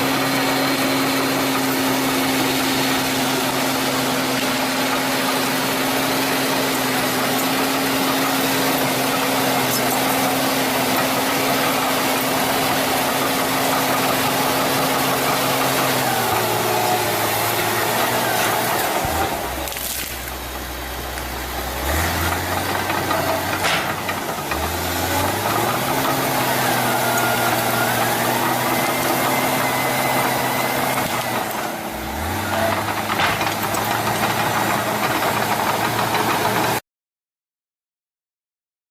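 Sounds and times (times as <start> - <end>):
heavy machine engine running: 0.0 - 36.8
sharp knocks: 23.6 - 24.6, 33.0 - 33.8.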